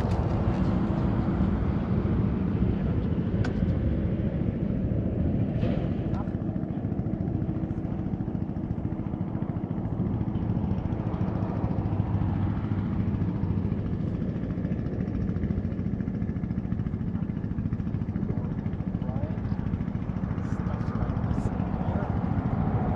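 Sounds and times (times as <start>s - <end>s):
motorcycle engine running steadily: 6.1s - 22.9s.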